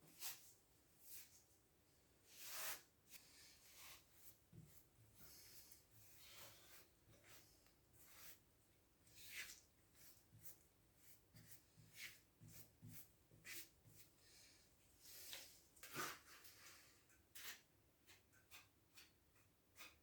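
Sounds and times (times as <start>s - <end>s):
faint taps and scrapes: 2.4s - 8.4s, 15.0s - 20.0s.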